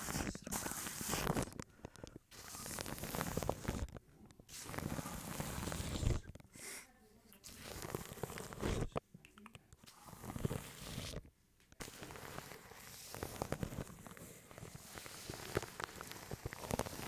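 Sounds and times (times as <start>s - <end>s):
brushing on plastic wrapped microphone: 0.0s - 1.6s, 2.3s - 6.4s, 7.4s - 9.0s, 9.9s - 17.0s
wet mouth clicks: 9.2s - 9.6s.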